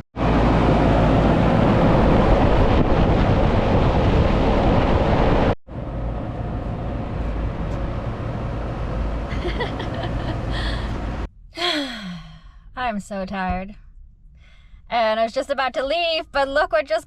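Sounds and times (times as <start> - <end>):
loud rushing rumble: 0.2 - 11.4
low hum: 0.2 - 16.6.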